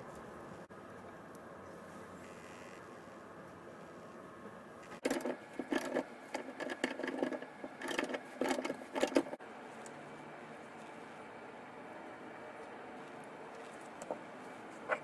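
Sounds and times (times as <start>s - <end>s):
small hard parts clicking and rattling: 4.8s - 9.4s.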